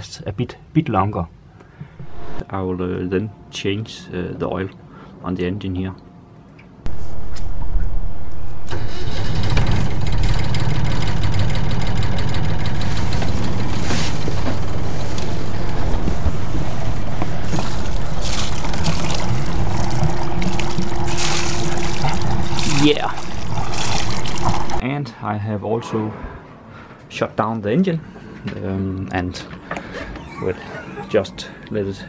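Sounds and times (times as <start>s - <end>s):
diesel engine starting and running: 6.9s - 24.8s.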